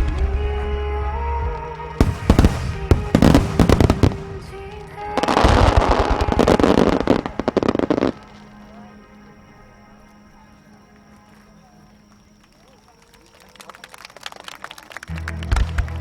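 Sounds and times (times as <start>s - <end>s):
fireworks bangs: 0.0s - 9.2s
fireworks crackling barrage: 0.0s - 16.0s
music: 0.0s - 16.0s.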